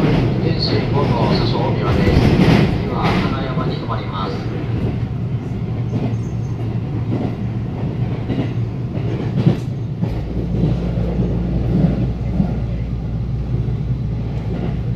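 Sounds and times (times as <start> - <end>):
train wheels rumbling on rails: 0.0 - 14.9
wheels clacking over rail joints: 5.8 - 12.5.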